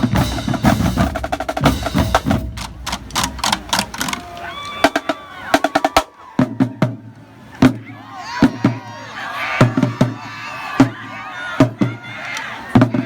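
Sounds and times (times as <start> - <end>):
booming bass drums: 0.0 - 4.0
snare and tenor drums: 0.0 - 8.9, 9.6 - 12.1, 12.7 - 13.0
voices: 1.2 - 13.0.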